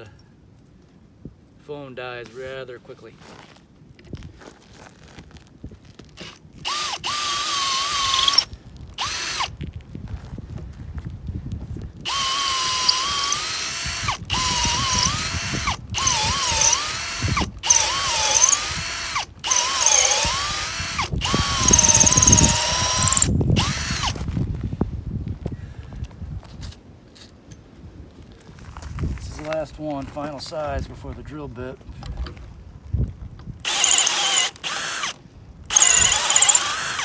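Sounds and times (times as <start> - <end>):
electric drill boring: 6.2 - 9.5, 12.0 - 24.2, 33.6 - 37.0.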